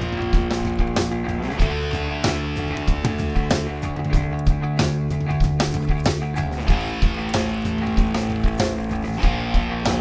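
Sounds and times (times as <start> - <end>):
guitar-led rock music: 0.0 - 10.0.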